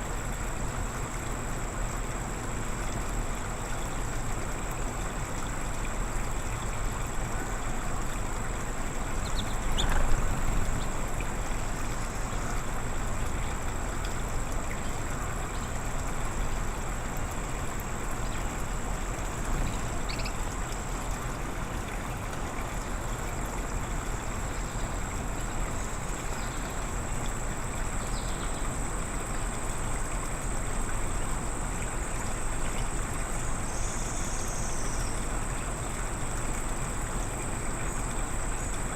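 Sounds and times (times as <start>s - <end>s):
constant high-pitched whine: 0.0s - 38.9s
outdoor hiss and low rumble: 0.0s - 38.9s
faint bird chirps: 9.2s - 10.2s, 19.7s - 20.4s.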